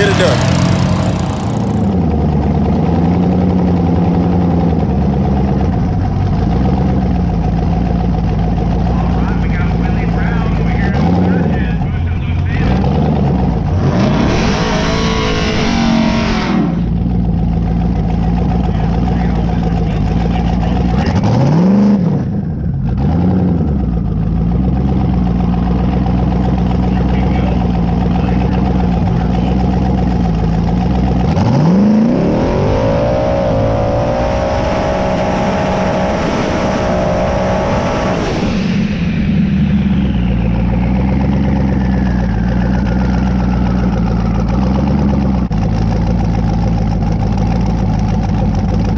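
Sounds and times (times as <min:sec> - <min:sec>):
falling whine: 0:00.0 - 0:02.0, 0:33.0 - 0:42.6
race car engine at full throttle: 0:00.0 - 0:48.9
race car engine idling and revving: 0:00.0 - 0:48.9.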